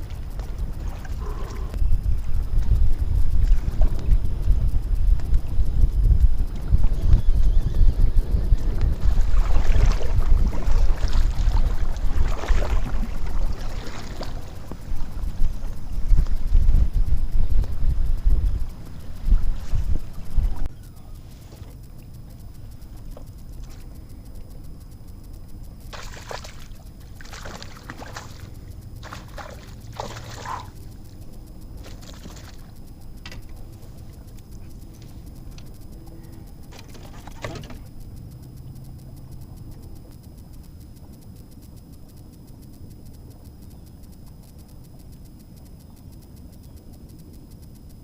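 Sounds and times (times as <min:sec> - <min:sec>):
water splashing around kayak: 0:00.0 - 0:01.7, 0:08.6 - 0:16.8, 0:25.9 - 0:30.9, 0:31.8 - 0:32.8
wind buffeting microphone: 0:00.0 - 0:21.1
low rumble: 0:00.0 - 0:25.9.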